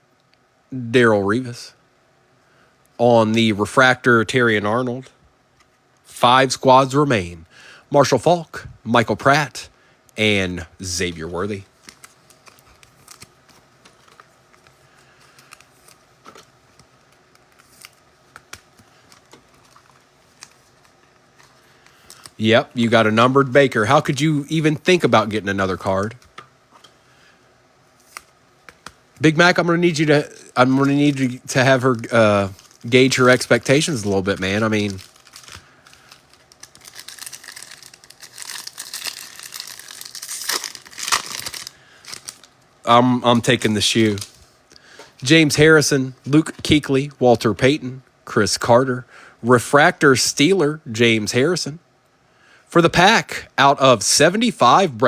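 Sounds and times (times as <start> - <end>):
trading cards being handled: 10.8 - 24.4, 27.9 - 42.6
foil wrapper crinkling: 11.5 - 23.2, 29.8 - 42.6.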